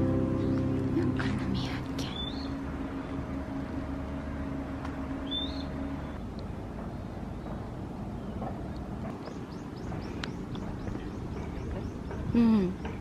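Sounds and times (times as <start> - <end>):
held low tone: 0.0 - 6.2
steady low rumble: 0.0 - 13.0
short rising bird chirp: 2.0 - 3.2, 5.2 - 6.2.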